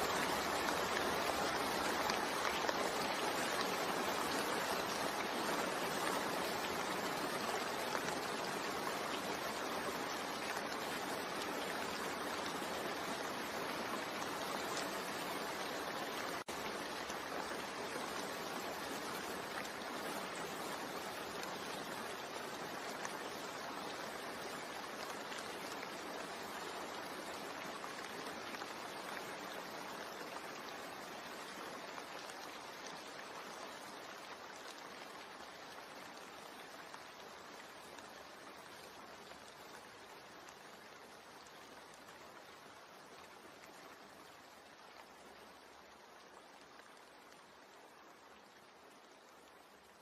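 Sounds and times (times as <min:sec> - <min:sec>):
steady rain: 0:00.0 - 0:50.0.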